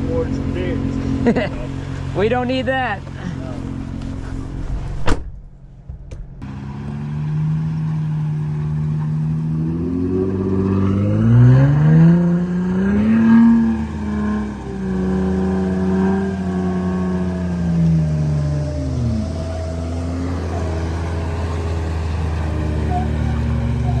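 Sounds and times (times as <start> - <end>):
engine revving under load: 3.0 - 24.0.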